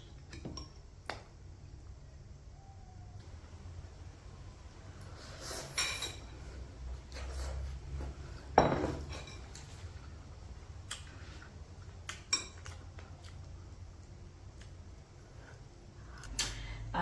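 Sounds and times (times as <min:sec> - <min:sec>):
cutlery clinking against a plate: 0:05.6 - 0:06.3, 0:08.6 - 0:09.7, 0:12.1 - 0:12.8
cutlery knocking on a plate: 0:08.6 - 0:09.2.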